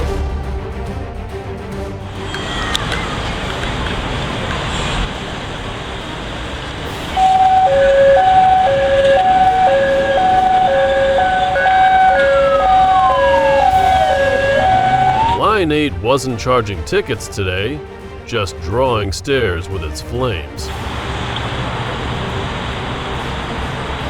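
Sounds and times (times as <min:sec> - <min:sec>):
traffic noise: 0:02.0 - 0:24.0
two-tone emergency siren: 0:06.7 - 0:15.6
siren tone gliding downward: 0:07.1 - 0:15.6.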